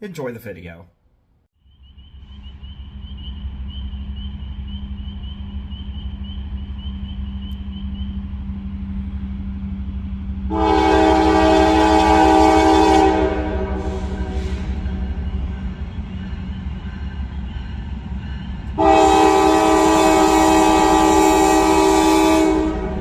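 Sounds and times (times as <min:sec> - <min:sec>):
diesel locomotive rumble: 0:01.8 - 0:23.0
locomotive air horn blast: 0:10.5 - 0:15.1, 0:18.8 - 0:23.0.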